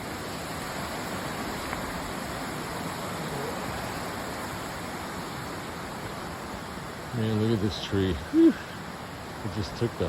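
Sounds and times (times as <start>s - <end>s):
waterfall rushing over rock: 0.0s - 10.0s.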